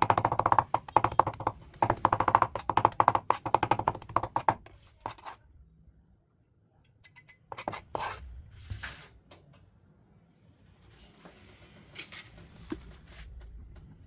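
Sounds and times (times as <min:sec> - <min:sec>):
knife chopping on cutting board: 0:00.0 - 0:05.4.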